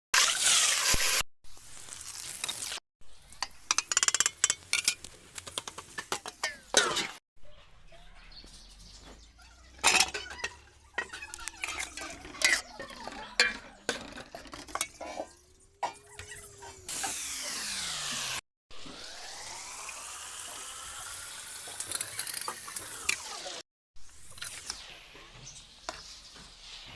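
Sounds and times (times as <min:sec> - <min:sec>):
food sizzling in oil: 0:00.2 - 0:04.6, 0:18.9 - 0:24.9.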